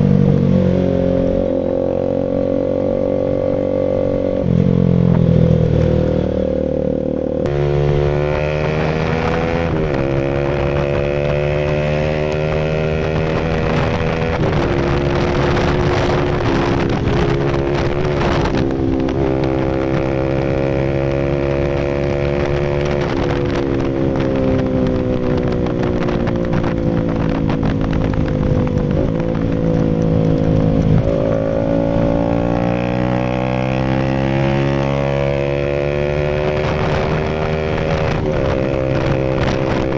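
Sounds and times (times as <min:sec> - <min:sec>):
exhaust crackling: 0:00.0 - 0:39.9
motorcycle engine revving: 0:00.0 - 0:39.9.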